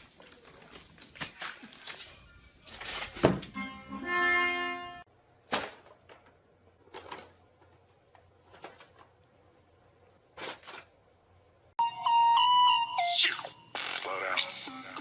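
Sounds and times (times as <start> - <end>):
held musical chord: 3.6 - 5.1.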